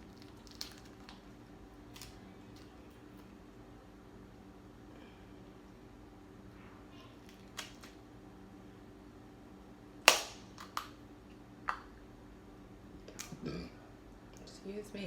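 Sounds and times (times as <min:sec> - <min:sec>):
crab shells cracking: 0:00.0 - 0:03.3, 0:07.2 - 0:08.0, 0:10.1 - 0:11.0.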